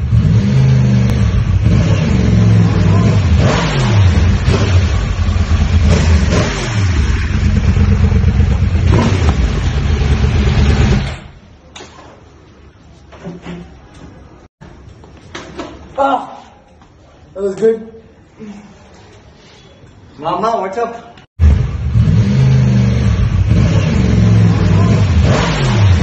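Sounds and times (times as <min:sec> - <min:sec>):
motorcycle engine revving: 0:00.0 - 0:11.4, 0:21.4 - 0:26.0.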